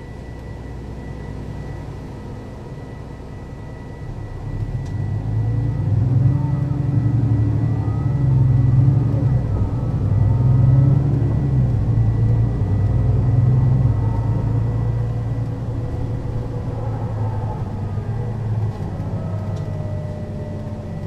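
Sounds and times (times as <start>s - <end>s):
bus diesel engine running: 0.0s - 21.0s
faint gliding whine: 0.0s - 21.0s.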